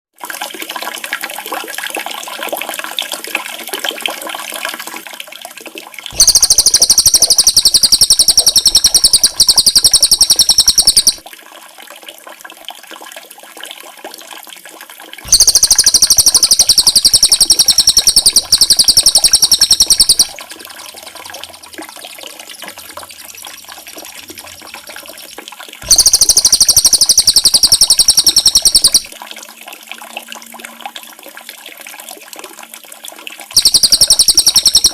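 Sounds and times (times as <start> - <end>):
fast buzzing bird trill: 6.2 - 11.2, 15.3 - 20.4, 25.8 - 29.1, 33.6 - 34.9
small birds chirping: 6.2 - 11.2, 15.3 - 20.3.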